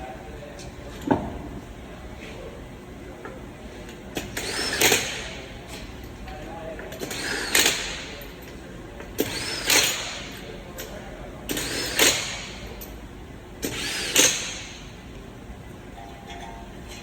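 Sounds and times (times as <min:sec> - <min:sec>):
pneumatic impact wrench bursts: 0:04.2 - 0:05.5, 0:07.0 - 0:08.3, 0:09.2 - 0:10.4, 0:11.5 - 0:12.9, 0:13.6 - 0:15.0.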